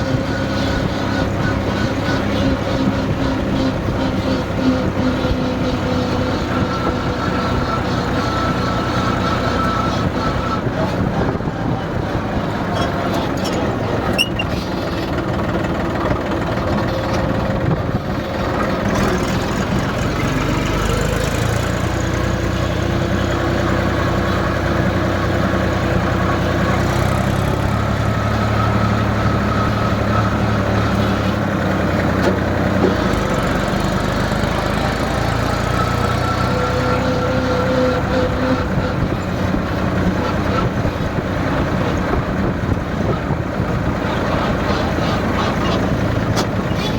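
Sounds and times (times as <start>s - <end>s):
tractor engine running: 0.0s - 46.9s.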